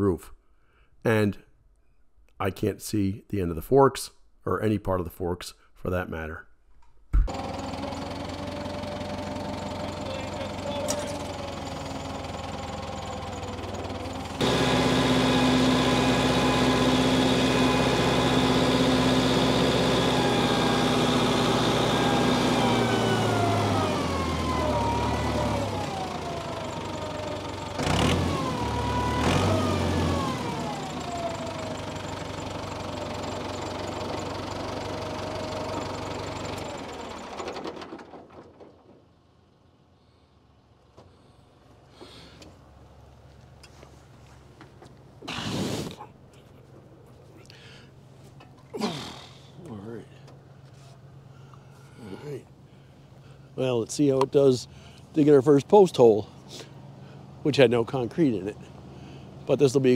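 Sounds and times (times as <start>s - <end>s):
tractor engine running: 7.2s - 39.8s, 40.5s - 59.9s.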